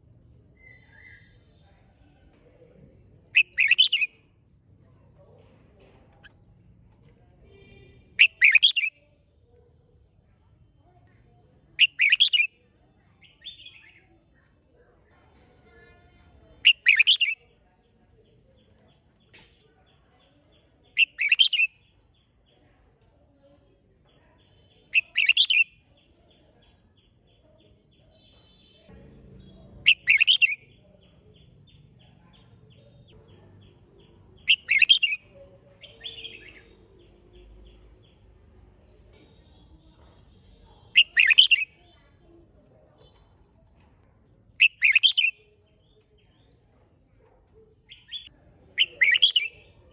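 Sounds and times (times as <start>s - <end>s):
bird singing: 3.3s - 4.2s, 7.6s - 9.1s, 11.8s - 12.5s, 16.6s - 17.5s, 20.6s - 22.3s, 23.2s - 42.3s, 43.0s - 46.7s, 47.7s - 49.9s.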